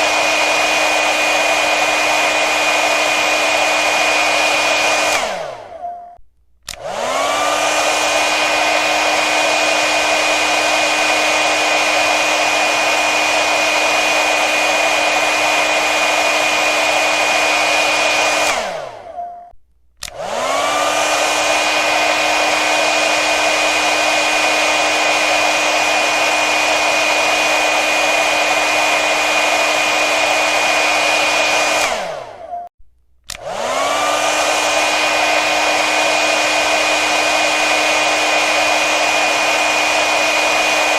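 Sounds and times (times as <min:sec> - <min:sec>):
hair dryer running: 0:00.0 - 0:05.9, 0:06.6 - 0:19.2, 0:20.0 - 0:32.7, 0:33.3 - 0:40.9
hair dryer winding down: 0:00.0 - 0:05.9, 0:06.7 - 0:19.2, 0:20.0 - 0:32.7, 0:33.3 - 0:40.9.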